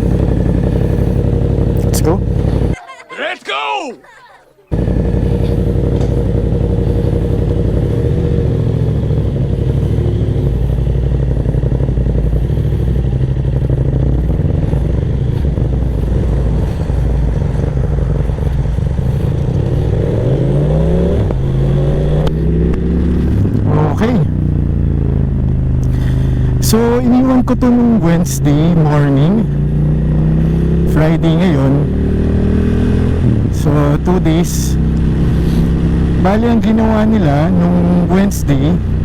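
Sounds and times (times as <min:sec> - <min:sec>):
motorcycle engine running: 0:00.0 - 0:02.8, 0:04.7 - 0:39.0.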